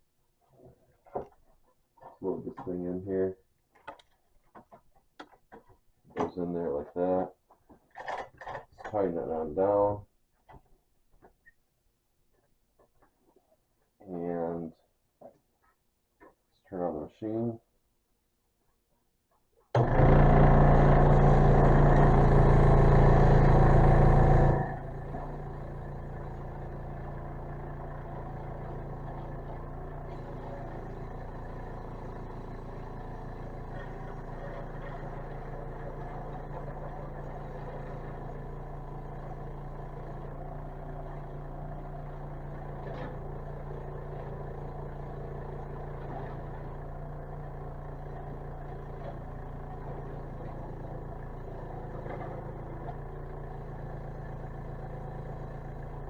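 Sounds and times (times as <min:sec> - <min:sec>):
scroll saw running: 0:19.8 - 0:44.7.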